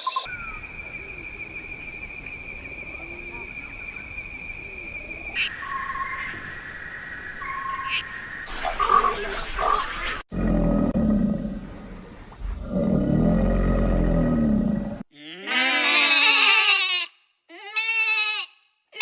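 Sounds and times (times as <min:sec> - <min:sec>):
large animal deep roaring: 0:08.8 - 0:15.0
wavering high-pitched bleat: 0:15.1 - 0:19.0.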